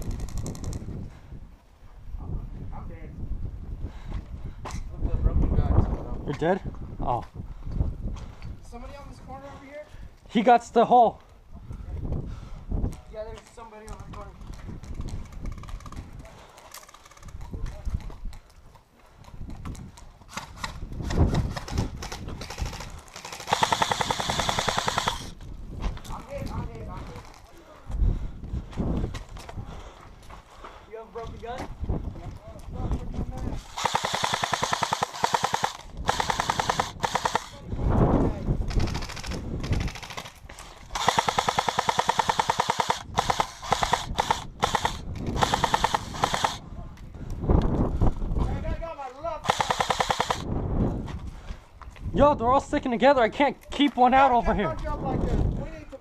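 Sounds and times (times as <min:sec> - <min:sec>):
airsoft gun firing full auto: 0:22.0 - 0:25.3, 0:33.7 - 0:37.6, 0:38.7 - 0:40.3, 0:40.9 - 0:46.6, 0:49.4 - 0:50.5
footsteps: 0:22.7 - 0:34.6.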